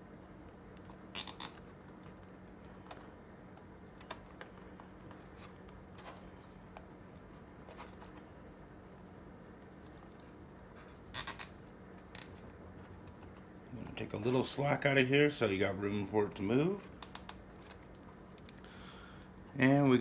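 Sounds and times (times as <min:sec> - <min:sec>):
low steady hum: 0:00.0 - 0:20.0
zip tie clicking: 0:01.2 - 0:01.6, 0:11.1 - 0:12.4.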